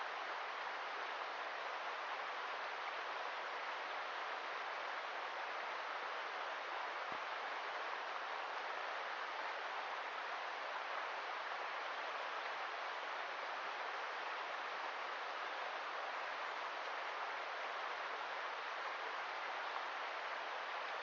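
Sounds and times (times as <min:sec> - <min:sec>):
river water rushing: 0:00.0 - 0:21.0.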